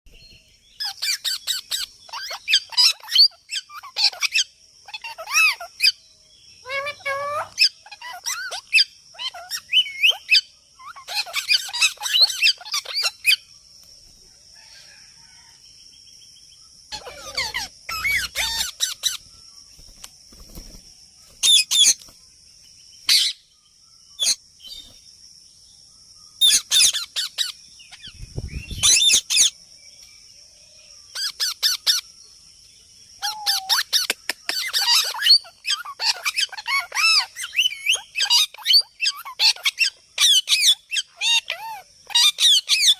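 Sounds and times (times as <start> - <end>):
parrot chirping and squawking: 0.8 - 6.0, 6.6 - 13.4, 16.9 - 19.2, 21.4 - 22.0, 23.1 - 23.4, 26.4 - 28.1, 28.8 - 29.6, 31.1 - 32.0, 33.2 - 42.9.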